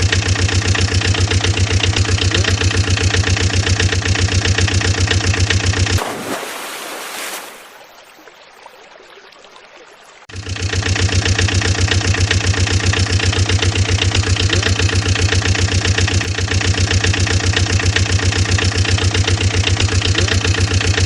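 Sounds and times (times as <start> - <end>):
vehicle engine idling: 0.0 - 6.0, 10.3 - 21.0.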